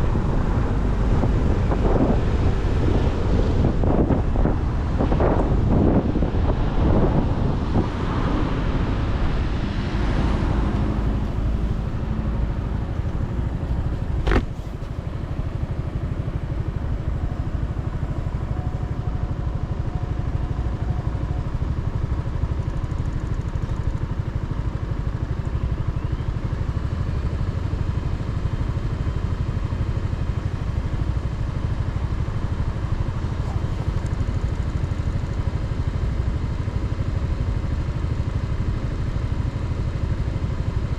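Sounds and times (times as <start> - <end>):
wind noise on microphone: 0.0 - 22.4
motorcycle engine: 10.0 - 15.0.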